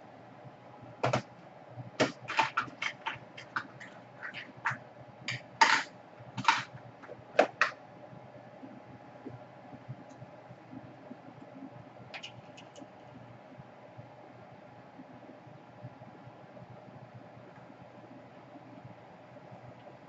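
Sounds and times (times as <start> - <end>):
faint steady hum: 0.0 - 20.0
small objects clicking and tapping: 2.0 - 7.8.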